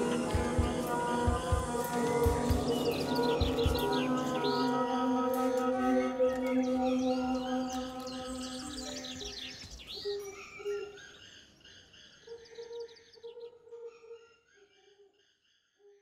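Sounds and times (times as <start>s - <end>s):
held musical tone: 0.0s - 9.2s
birds chirping and twittering: 0.0s - 16.0s.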